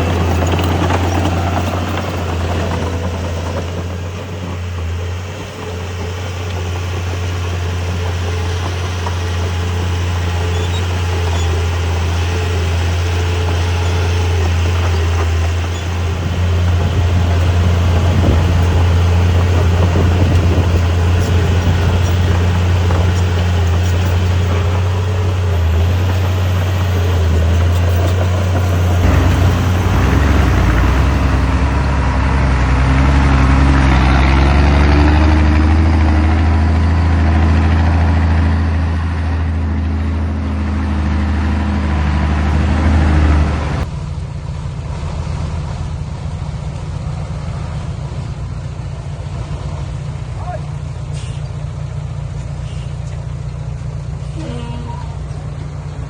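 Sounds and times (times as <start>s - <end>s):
heavy diesel engine under load: 0.0s - 56.0s.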